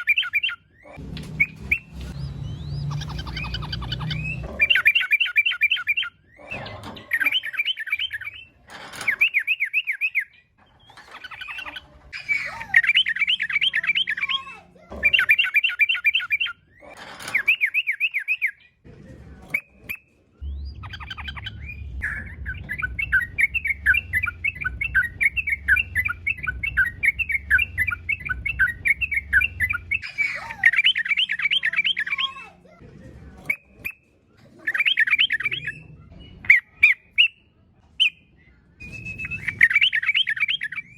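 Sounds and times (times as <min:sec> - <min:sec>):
bird chattering song: 0:00.0 - 0:18.8, 0:19.6 - 0:32.7, 0:33.4 - 0:40.9
low rumble: 0:20.4 - 0:30.1.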